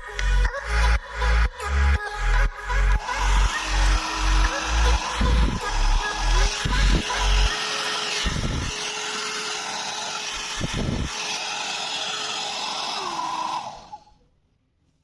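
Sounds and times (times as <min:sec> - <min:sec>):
hair dryer blowing whir: 0:02.9 - 0:14.1.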